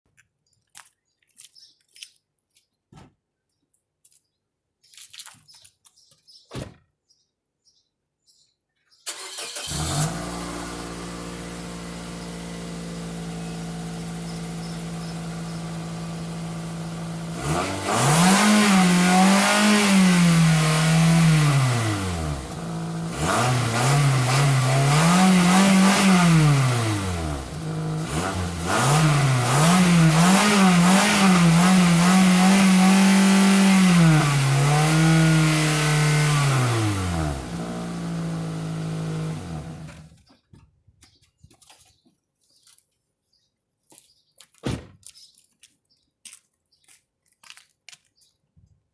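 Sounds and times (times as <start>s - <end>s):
car engine idling and revving: 9.1s - 40.2s.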